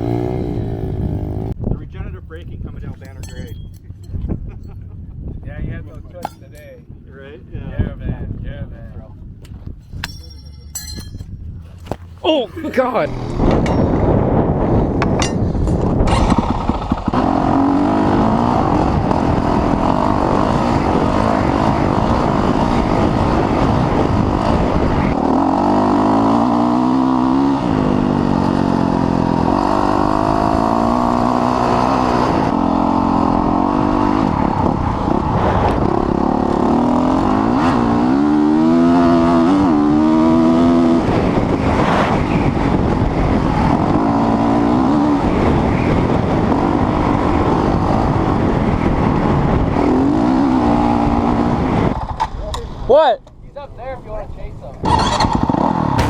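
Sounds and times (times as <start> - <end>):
dirt bike engine running hard: 0.0 - 6.8, 9.7 - 52.2.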